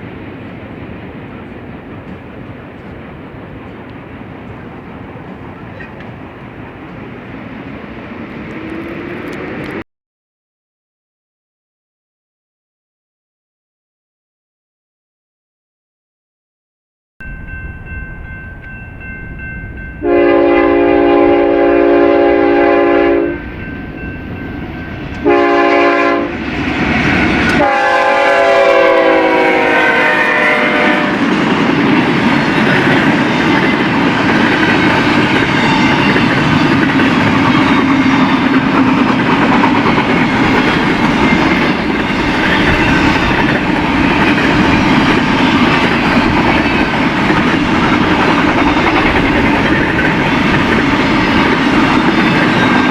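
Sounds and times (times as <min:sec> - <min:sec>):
locomotive horn blasts: 0:20.0 - 0:23.6, 0:25.2 - 0:26.4, 0:27.4 - 0:31.3.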